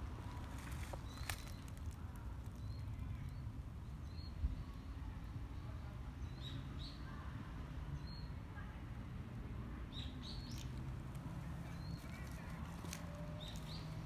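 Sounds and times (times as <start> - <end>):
birds chirping: 10.0 - 14.0.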